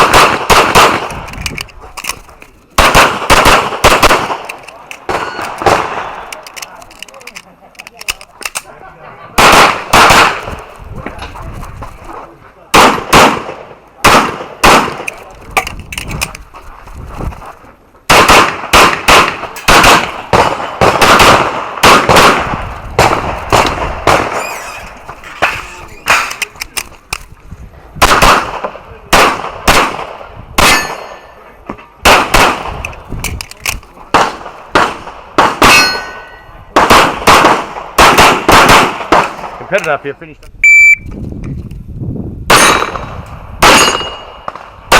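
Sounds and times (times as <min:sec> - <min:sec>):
handgun shots: 0:18.1 - 0:24.8.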